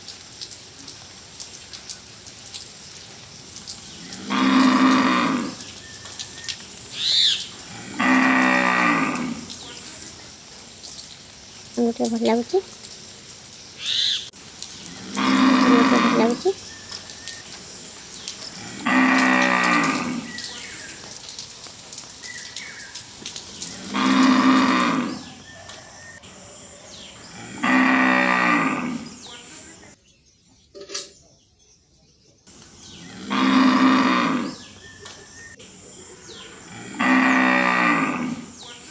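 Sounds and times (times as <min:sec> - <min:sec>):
cow mooing: 0:04.1 - 0:05.6, 0:07.7 - 0:09.6, 0:15.0 - 0:16.5, 0:18.6 - 0:20.3, 0:23.8 - 0:25.4, 0:27.3 - 0:29.2, 0:33.1 - 0:34.6, 0:36.7 - 0:38.5.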